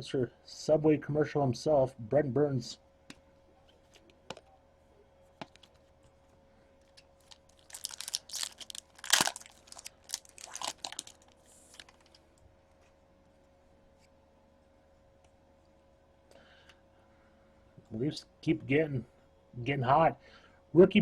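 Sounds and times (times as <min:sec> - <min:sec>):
wrapper crinkling and tearing: 0:06.9 - 0:12.2.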